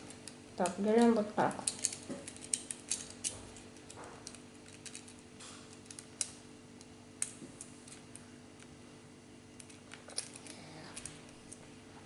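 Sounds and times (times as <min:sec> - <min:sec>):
plastic parts clicking together: 0:00.1 - 0:06.4.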